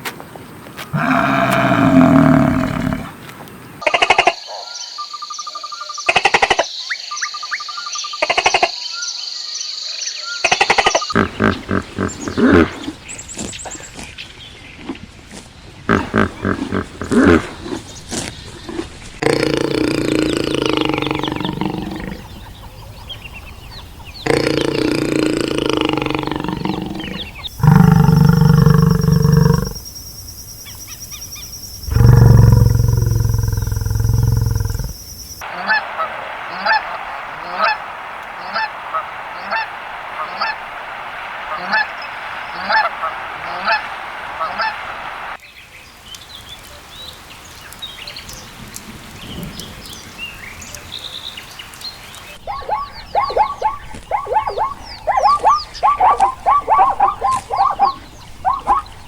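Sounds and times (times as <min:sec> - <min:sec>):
long low animal calls: 0:00.9 - 0:03.2, 0:11.1 - 0:13.0, 0:15.9 - 0:17.8, 0:18.7 - 0:23.2, 0:24.0 - 0:29.9, 0:31.8 - 0:45.4, 0:52.4 - 0:59.0.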